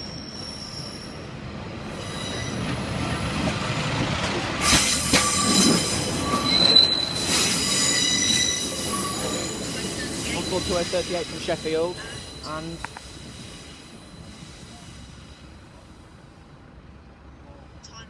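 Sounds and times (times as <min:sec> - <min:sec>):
train wheels squealing: 0:00.0 - 0:03.3, 0:04.6 - 0:15.6
diesel train rumbling: 0:00.0 - 0:18.0.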